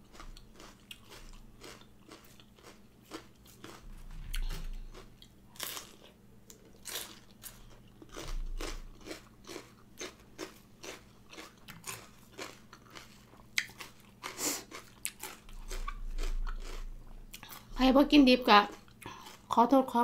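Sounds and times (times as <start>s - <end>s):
crunchy chewing: 0.0s - 17.7s.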